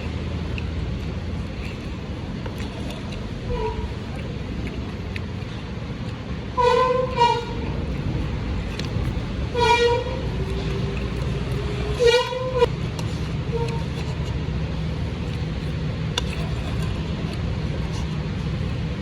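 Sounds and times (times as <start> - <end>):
road traffic rumble: 0.0 - 19.0
horn tooting: 3.5 - 4.0, 6.6 - 7.8, 9.5 - 10.2, 11.9 - 12.7, 13.5 - 13.9.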